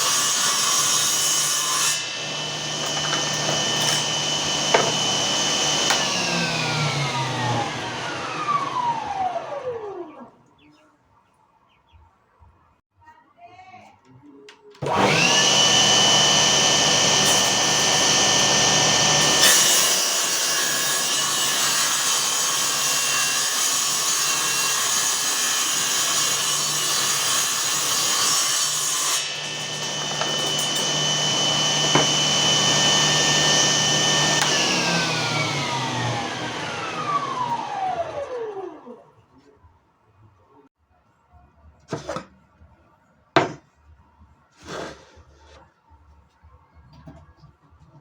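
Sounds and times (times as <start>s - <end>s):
saw blade grinding workpiece: 0.0s - 8.0s, 14.8s - 37.7s.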